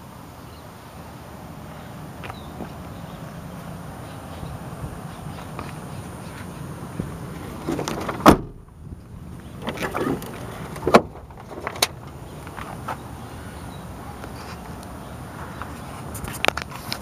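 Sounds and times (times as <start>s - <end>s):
truck door shutting: 7.6s - 8.7s, 9.6s - 12.0s.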